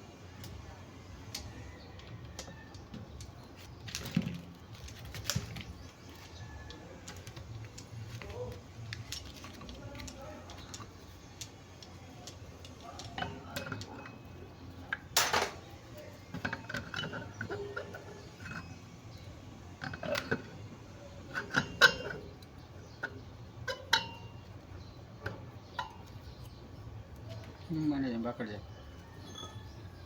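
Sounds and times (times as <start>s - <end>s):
metal tools clinking and knocking: 8.2s - 24.5s.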